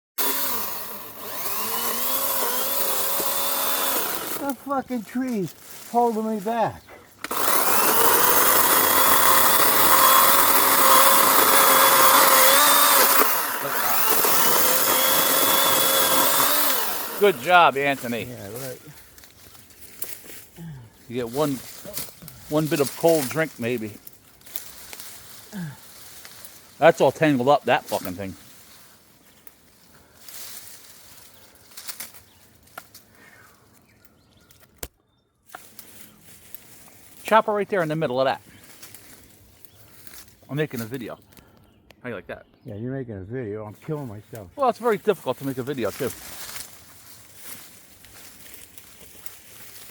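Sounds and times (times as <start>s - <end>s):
power saw cutting wood: 0.2s - 4.8s, 7.2s - 18.8s, 21.1s - 25.4s, 26.2s - 28.4s
branches rustling and dragging: 0.2s - 34.8s, 35.5s - 41.4s, 43.8s - 49.9s
twigs cracking: 0.2s - 37.3s, 38.4s - 42.0s, 44.3s - 49.9s.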